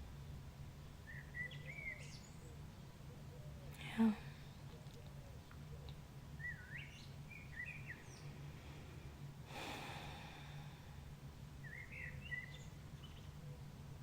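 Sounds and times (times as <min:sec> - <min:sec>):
faint low hum: 0:00.0 - 0:14.0
birds chirping: 0:01.0 - 0:10.6, 0:11.6 - 0:13.8
soft breath: 0:08.1 - 0:11.3.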